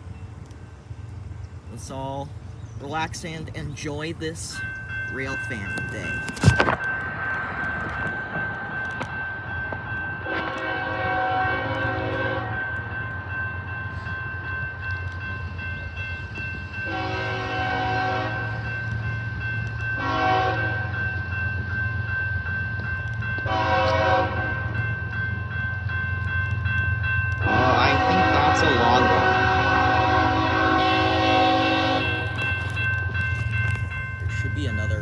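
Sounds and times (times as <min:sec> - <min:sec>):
train horn blasts: 0:10.2 - 0:12.6, 0:16.8 - 0:18.6, 0:20.0 - 0:20.9, 0:23.4 - 0:24.6, 0:27.4 - 0:32.5.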